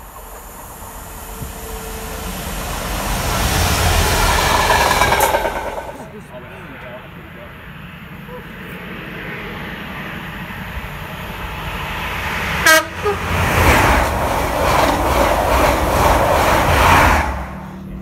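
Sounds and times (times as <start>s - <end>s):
train passing rush: 0.0s - 18.0s
train horn toot: 12.6s - 13.4s.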